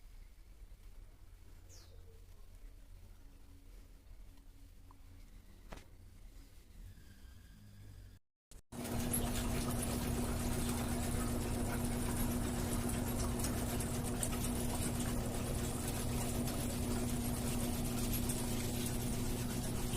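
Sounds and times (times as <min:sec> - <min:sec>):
washing machine motor humming: 0:08.7 - 0:19.9.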